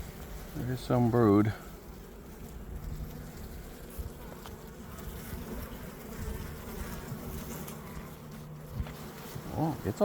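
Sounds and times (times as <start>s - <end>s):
honeybees buzzing: 0.0s - 10.0s.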